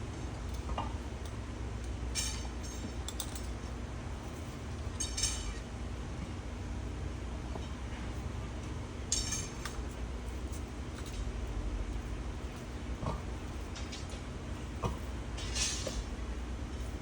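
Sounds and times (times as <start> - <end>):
metallic clinks: 4.9 - 5.6.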